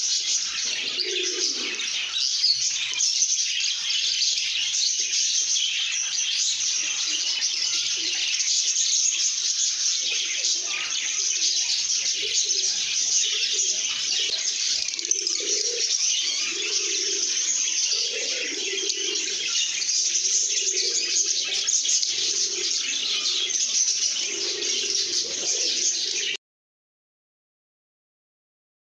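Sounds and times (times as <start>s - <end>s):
birds chattering and chirping: 0.0s - 26.4s
lower repeated bird call: 11.0s - 26.4s.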